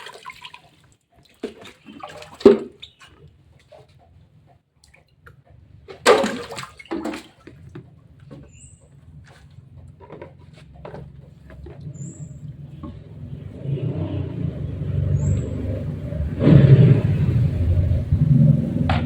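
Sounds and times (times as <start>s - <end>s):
water splashing and pouring: 0.0s - 3.3s, 5.9s - 7.7s.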